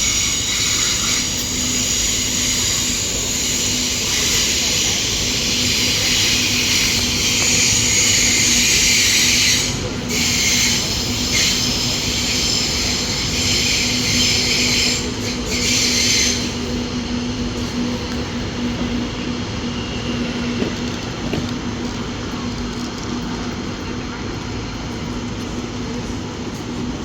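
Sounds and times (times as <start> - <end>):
wheels and brakes squealing: 0.0 - 21.2
train rumbling: 0.0 - 27.0.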